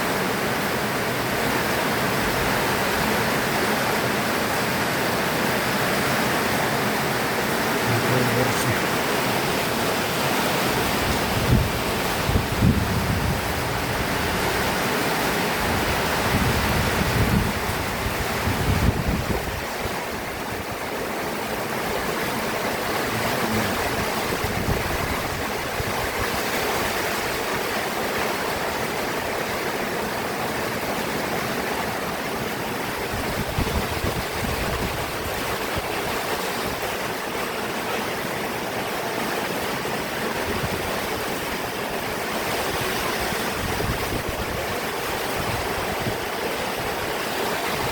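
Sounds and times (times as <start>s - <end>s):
heavy rain pouring: 0.0s - 47.9s
wind gusts buffeting microphone: 7.4s - 29.8s, 32.0s - 37.1s, 42.4s - 47.9s.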